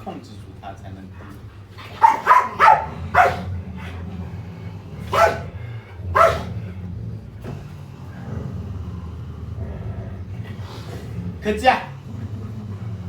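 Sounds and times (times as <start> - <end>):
steady low hum: 0.0 - 13.0
dog barking: 1.8 - 3.6, 5.0 - 5.5, 6.1 - 6.6.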